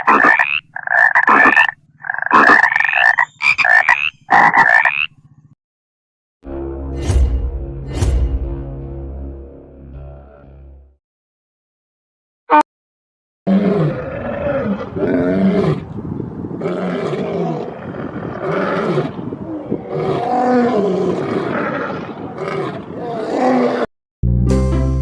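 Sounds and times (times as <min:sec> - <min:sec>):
background music: 0:06.5 - 0:10.9, 0:24.2 - 0:25.0
lion roaring: 0:09.9 - 0:10.8, 0:13.5 - 0:23.9.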